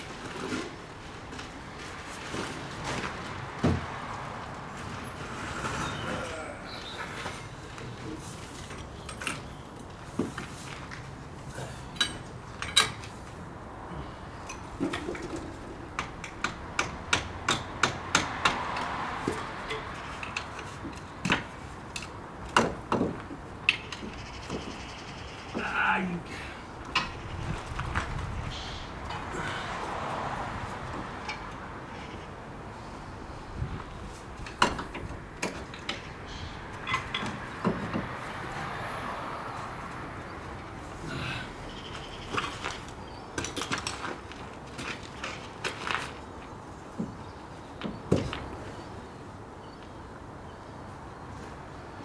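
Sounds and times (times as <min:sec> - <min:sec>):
metal tools clinking and knocking: 0:11.9 - 0:13.1, 0:36.8 - 0:38.0.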